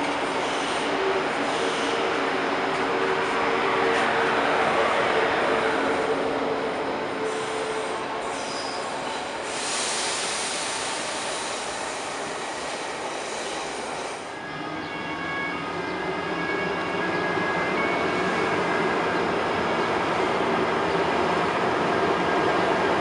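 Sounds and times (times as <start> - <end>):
rail and wheel noise with squeal: 0.0 - 23.0
hiss: 7.3 - 14.2.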